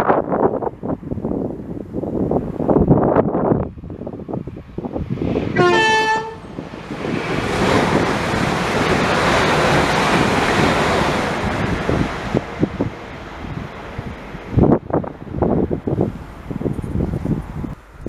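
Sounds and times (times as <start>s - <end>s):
train passing with rushing roar: 0.0s - 18.0s
two-note train horn: 5.6s - 6.5s.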